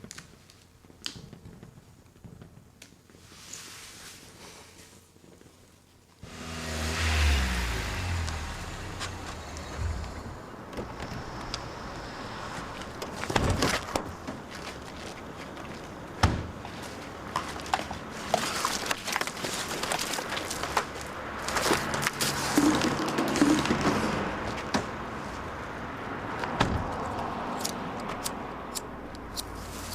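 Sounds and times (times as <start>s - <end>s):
street noise: 6.0s - 29.9s
vehicle engine passing: 6.2s - 13.3s.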